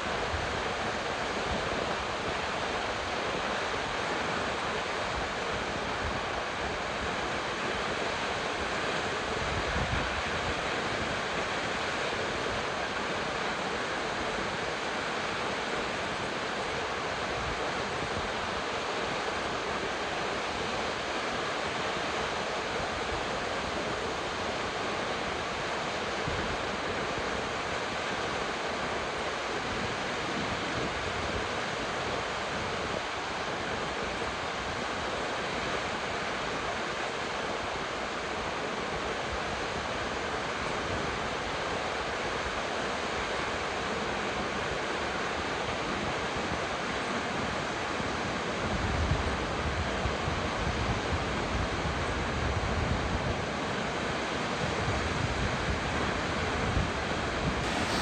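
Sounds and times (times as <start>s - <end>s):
waterfall rushing: 57.6s - 58.0s.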